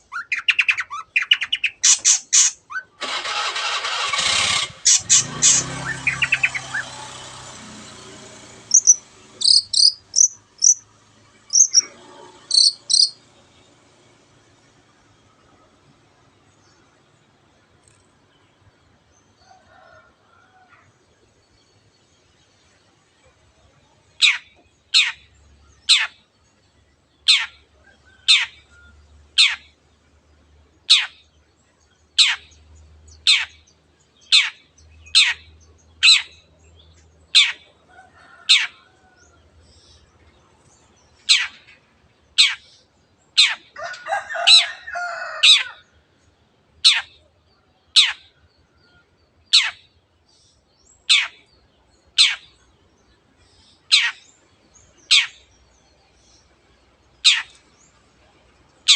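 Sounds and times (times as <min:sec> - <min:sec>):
harsh scratchy bird chatter: 0:00.2 - 0:10.8, 0:11.5 - 0:13.2.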